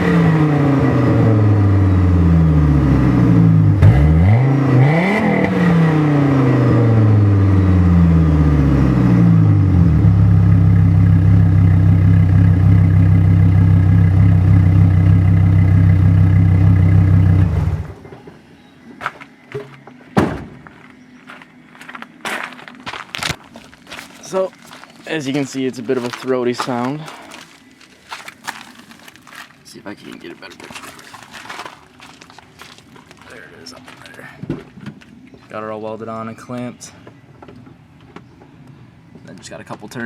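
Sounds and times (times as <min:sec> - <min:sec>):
throaty engine idling and revving: 0:00.0 - 0:18.2.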